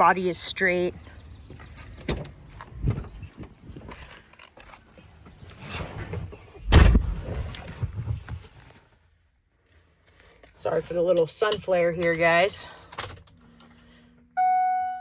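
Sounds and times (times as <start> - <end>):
heavy thump: 6.7 - 7.2
rustling and handling noise: 7.1 - 12.5.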